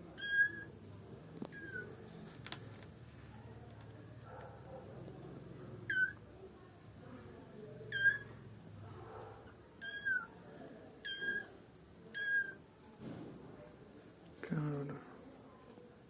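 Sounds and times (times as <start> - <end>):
cat mewing: 9.8 - 10.3.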